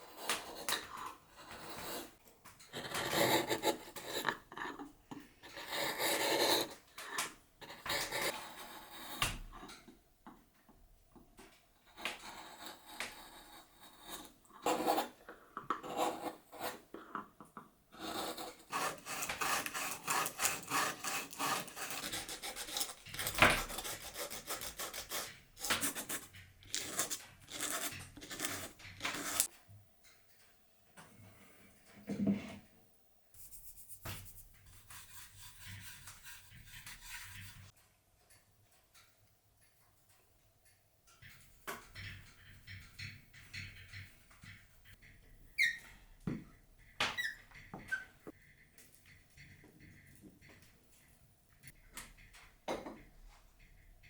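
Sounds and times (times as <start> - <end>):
hand tool scraping wood: 18.0 - 29.5, 34.2 - 37.7.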